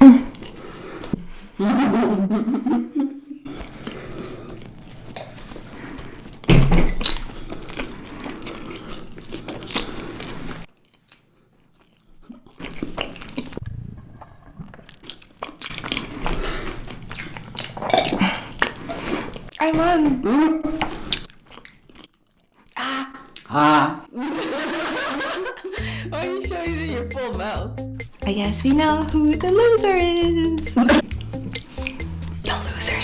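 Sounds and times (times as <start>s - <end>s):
chewing and crunching food: 0.0s - 1.2s, 3.5s - 13.6s, 14.3s - 19.6s, 20.7s - 24.2s.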